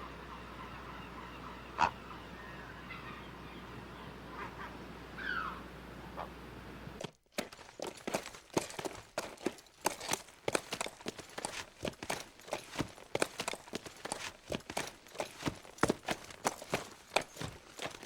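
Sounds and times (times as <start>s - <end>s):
bird calls: 0.0s - 6.6s, 7.8s - 18.0s.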